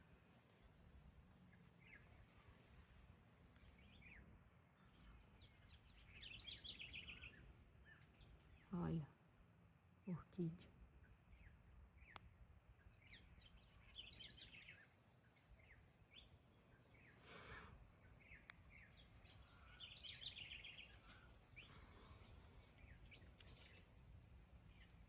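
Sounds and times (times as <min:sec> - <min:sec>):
faint birds chirping: 0:00.0 - 0:25.0
brief rustle: 0:23.2 - 0:24.0.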